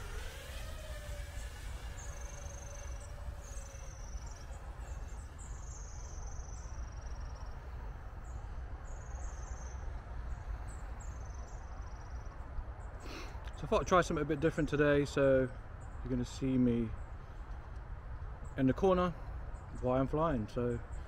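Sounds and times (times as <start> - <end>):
small bird calling: 0.0 - 13.6.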